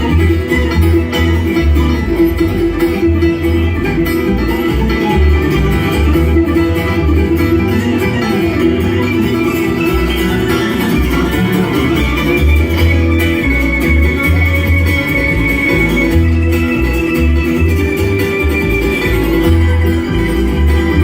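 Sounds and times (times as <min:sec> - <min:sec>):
acoustic guitar: 0:00.0 - 0:21.0
banjo picking: 0:00.0 - 0:21.0
bass notes: 0:00.0 - 0:21.0.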